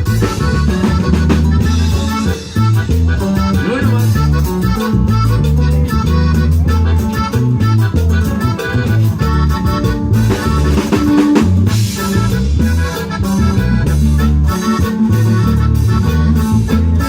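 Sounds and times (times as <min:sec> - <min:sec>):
drum kit: 0:00.0 - 0:17.0
electric bass: 0:00.0 - 0:17.0
electronic keyboard: 0:00.0 - 0:17.0.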